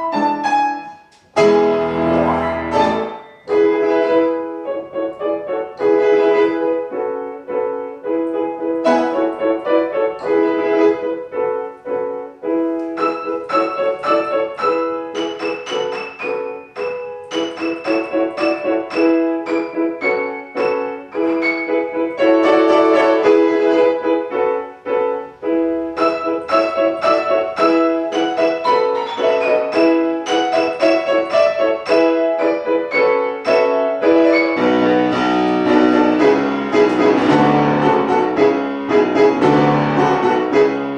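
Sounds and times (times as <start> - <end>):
piano: 0.0 - 40.9
violin: 1.4 - 7.1, 17.3 - 24.4, 25.4 - 40.9.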